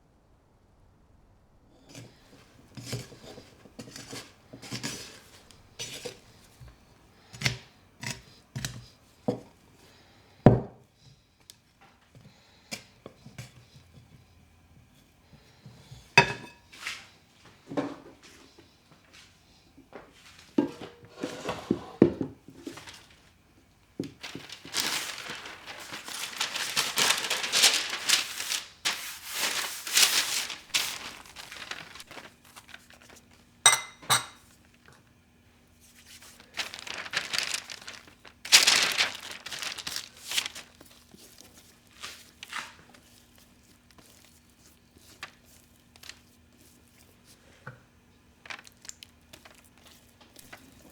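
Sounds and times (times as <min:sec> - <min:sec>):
dishes clinking: 0:16.2 - 0:16.7, 0:33.7 - 0:34.5
packaging crinkling and rustling: 0:22.6 - 0:35.0, 0:35.7 - 0:47.6, 0:48.2 - 0:50.9.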